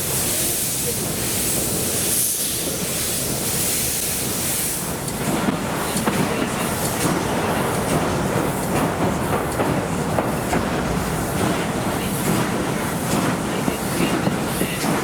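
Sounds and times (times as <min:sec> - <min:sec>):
train running noise: 0:00.0 - 0:15.0
wheels clicking on rail joints: 0:04.0 - 0:15.0.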